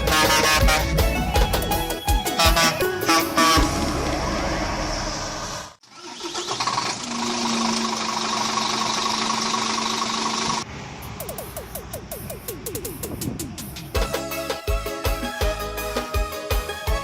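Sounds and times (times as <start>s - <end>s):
truck engine running: 6.5s - 14.2s.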